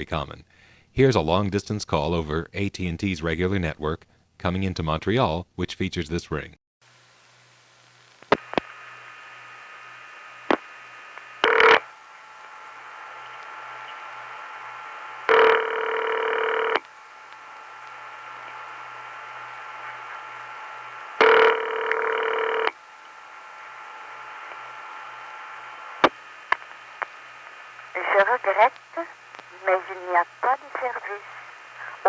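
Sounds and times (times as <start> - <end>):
low hum: 6.9 - 32.0
telephone ringing tone: 11.4 - 11.9, 15.3 - 16.8, 21.2 - 22.8.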